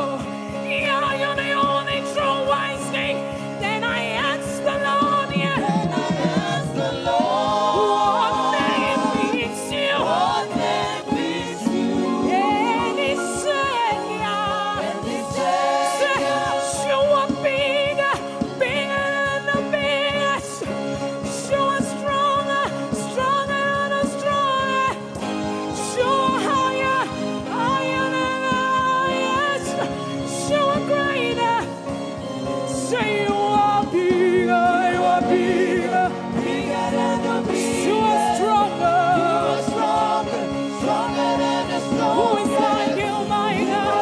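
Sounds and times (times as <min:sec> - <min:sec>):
people singing gospel: 0:00.0 - 0:20.3, 0:33.1 - 0:44.0
band with steady beat: 0:00.0 - 0:44.0
choir singing: 0:04.0 - 0:18.1, 0:32.9 - 0:44.0.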